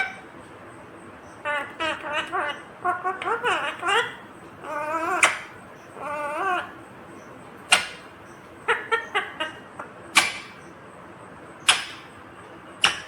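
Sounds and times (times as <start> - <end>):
parrot squawking: 0.0 - 0.2, 1.4 - 6.8, 7.7 - 9.6, 10.2 - 10.6.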